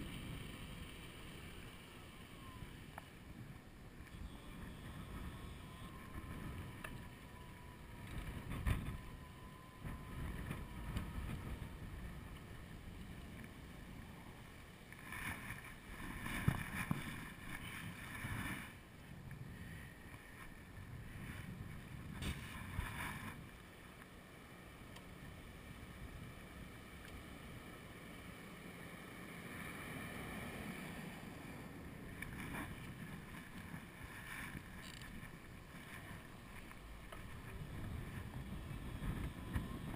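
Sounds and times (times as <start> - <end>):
faint thin whine: 0.0 - 39.9
wind buffeting microphone: 3.4 - 13.1, 37.1 - 39.9.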